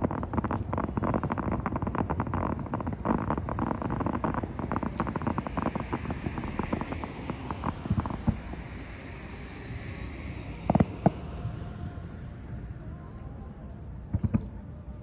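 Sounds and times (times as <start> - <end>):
fireworks bangs and crackles: 0.0 - 9.7, 10.6 - 11.6, 14.0 - 14.8
continuous low rumble: 0.0 - 15.0.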